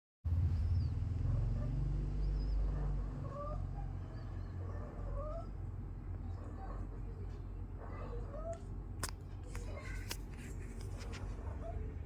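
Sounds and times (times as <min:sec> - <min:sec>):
low rumble: 0:00.3 - 0:03.5.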